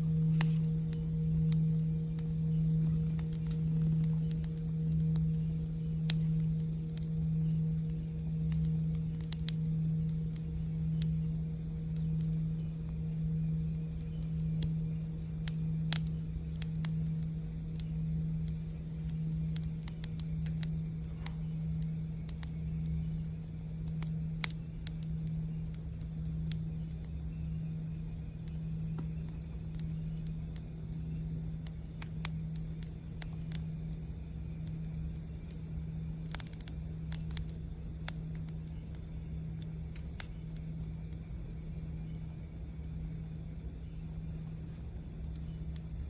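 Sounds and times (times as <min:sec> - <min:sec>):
singing bowl low tone: 0:00.0 - 0:36.1
campfire crackling and popping: 0:00.0 - 0:46.0.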